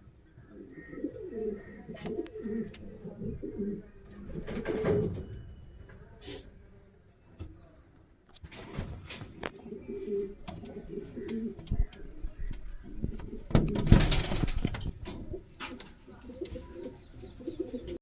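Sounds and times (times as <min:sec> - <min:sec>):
pigeons cooing: 0:00.4 - 0:05.3, 0:09.4 - 0:18.0
pigeons scuffling: 0:08.4 - 0:16.8.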